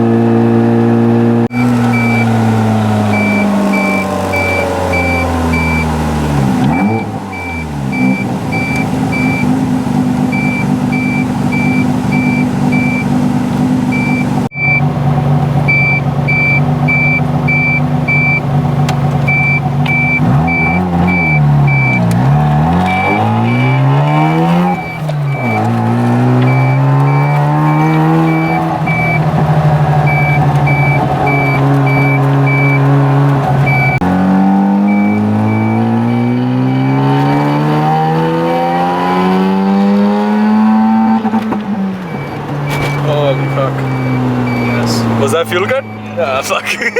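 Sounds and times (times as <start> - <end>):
rotary engine revving through gears: 0.0 - 46.9
high electronic beeping: 1.8 - 9.5, 10.3 - 13.2, 13.9 - 14.9, 15.7 - 18.4, 19.3 - 22.1, 22.8 - 29.3, 30.0 - 41.2, 42.1 - 46.7.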